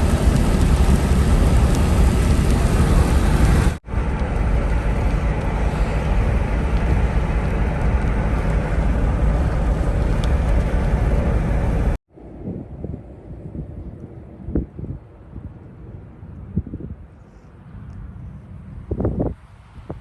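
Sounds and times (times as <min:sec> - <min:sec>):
moving car noise: 0:00.0 - 0:04.6
wind: 0:00.0 - 0:20.0
wind noise on microphone: 0:00.0 - 0:20.0.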